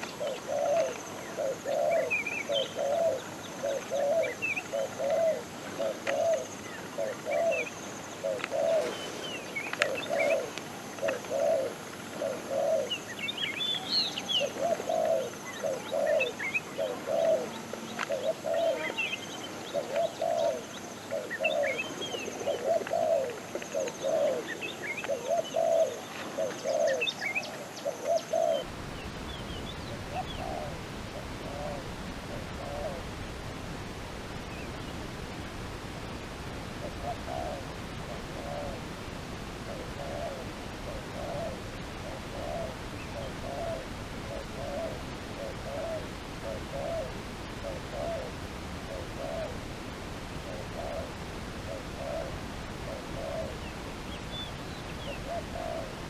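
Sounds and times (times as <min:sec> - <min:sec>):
dove cooing: 0:00.0 - 0:28.7, 0:29.3 - 0:33.2, 0:36.8 - 0:49.7, 0:50.3 - 0:56.0
small birds chirping: 0:00.0 - 0:30.8
steady hiss: 0:00.0 - 0:56.0.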